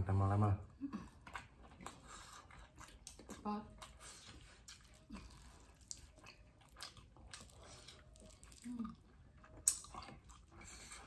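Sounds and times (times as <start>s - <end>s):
people chewing food: 0.0s - 11.0s
wet mouth smacks and clicks: 9.6s - 10.1s.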